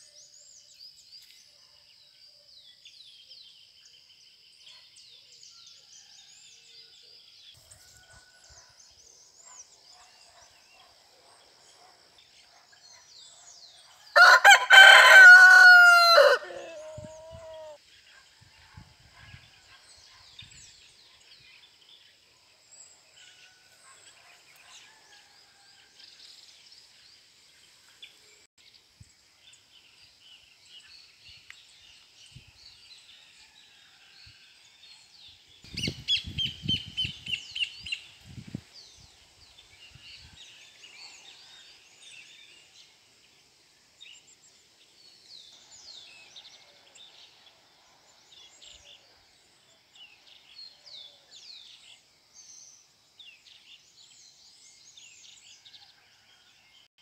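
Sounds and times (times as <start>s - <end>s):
loud bird call: 14.2s - 17.8s.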